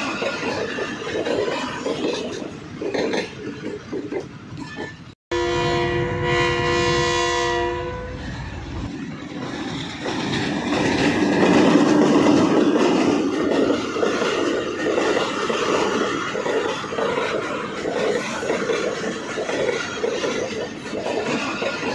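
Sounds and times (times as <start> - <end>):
train running noise: 0.0 - 21.9
train horn blast: 5.3 - 8.4.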